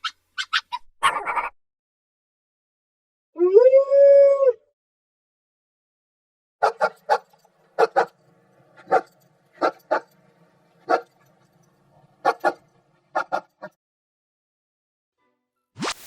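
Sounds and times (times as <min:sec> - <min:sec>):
dog barking sharply: 0:06.6 - 0:08.2, 0:10.9 - 0:11.1, 0:12.2 - 0:13.8.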